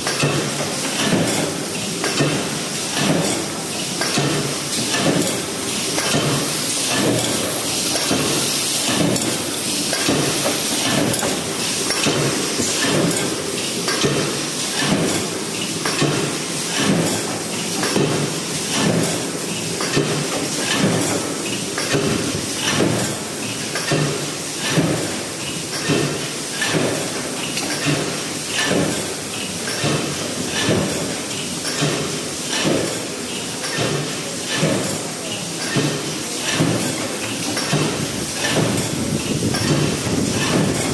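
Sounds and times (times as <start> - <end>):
box machine clacking: 33.7 - 40.9.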